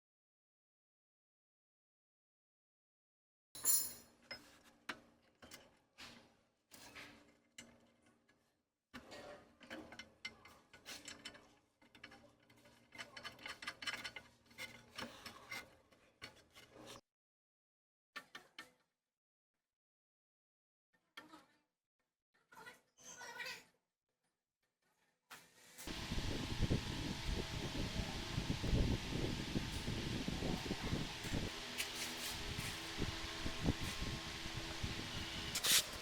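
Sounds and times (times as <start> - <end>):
rubbing and scraping: 31.2 - 33.1, 35.4 - 36.0.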